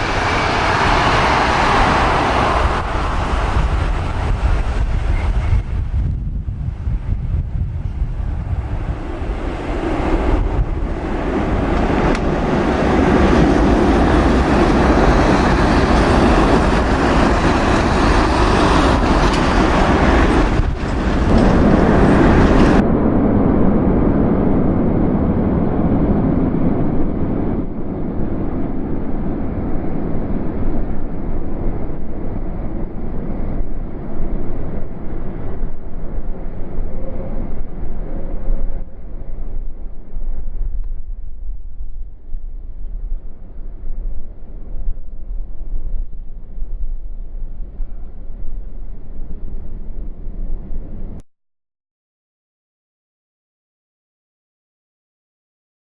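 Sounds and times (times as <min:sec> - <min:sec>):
jet engines running: 0:00.0 - 0:39.1
wind on microphone: 0:00.0 - 0:51.2.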